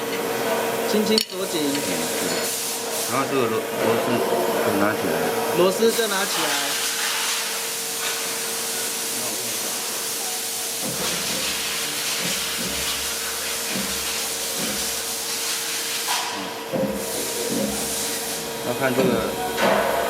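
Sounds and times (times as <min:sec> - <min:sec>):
steady hiss: 0:06.0 - 0:19.0
machine hum: 0:16.4 - 0:20.0.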